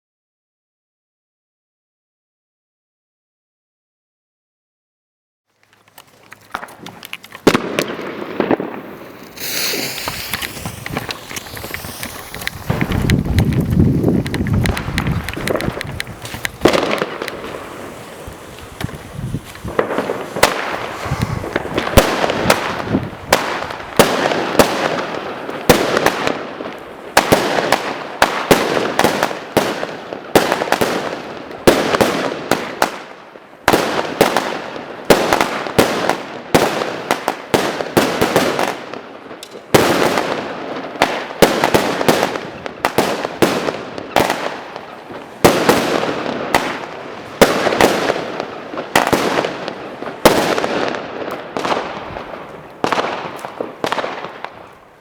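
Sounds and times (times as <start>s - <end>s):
firework launches: 6.3s - 32.8s
sharp firework bangs: 7.4s - 33.1s, 39.7s - 54.7s.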